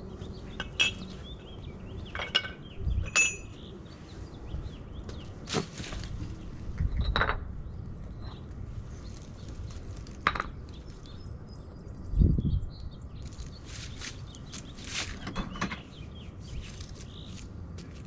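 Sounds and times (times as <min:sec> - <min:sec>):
clinks and knocks of tools and pavers: 0:00.4 - 0:01.4, 0:02.0 - 0:03.7, 0:05.1 - 0:11.2, 0:13.2 - 0:16.0
short metallic ring: 0:02.2 - 0:03.6.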